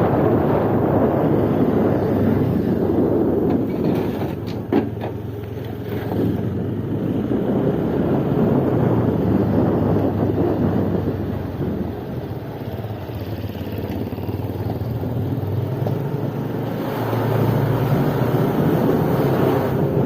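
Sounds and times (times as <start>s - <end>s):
vehicle engine hum: 0.0s - 20.0s.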